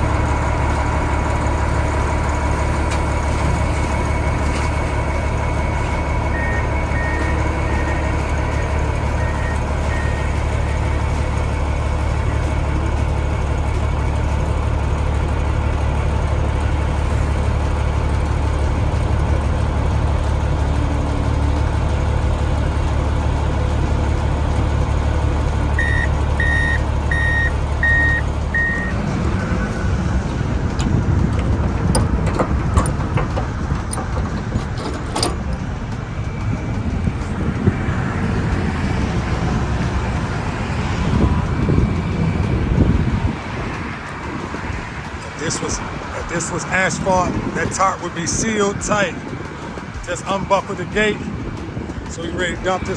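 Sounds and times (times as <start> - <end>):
diesel engine running: 0.0 - 52.9
backup alarm beeping: 6.0 - 11.0, 25.8 - 29.1
clicks and knocks: 30.8 - 35.7.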